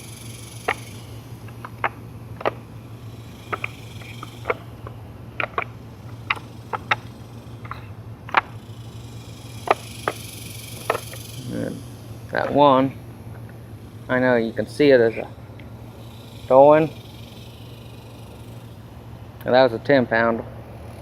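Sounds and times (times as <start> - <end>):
spools clicking in wooden holder: 0.0 - 11.7
low hum: 0.0 - 21.0.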